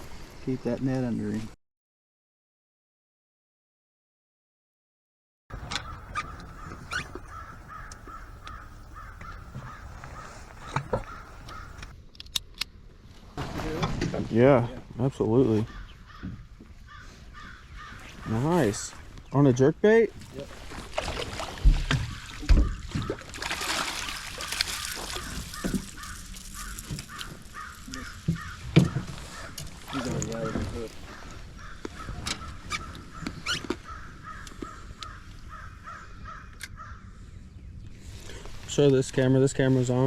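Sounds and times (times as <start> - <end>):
birds calling: 5.5 - 11.9, 15.3 - 19.6, 21.8 - 38.5
crow cawing: 5.5 - 11.9, 15.7 - 18.5, 22.0 - 23.3, 24.4 - 37.1
trickle of water: 20.3 - 28.3.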